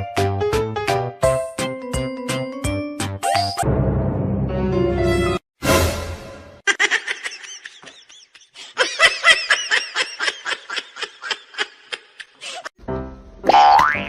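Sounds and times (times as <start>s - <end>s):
high-pitched giggling: 6.7s - 12.7s.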